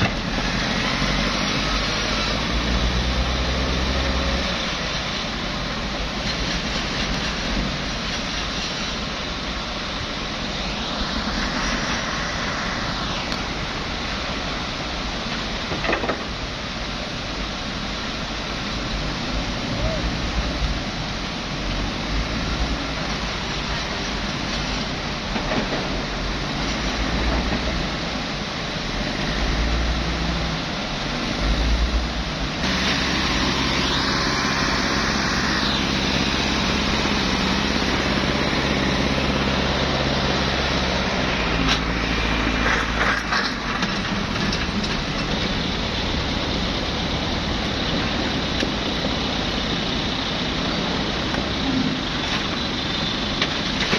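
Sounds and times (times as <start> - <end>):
heavy diesel engine running: 0.0 - 15.7, 31.6 - 53.9.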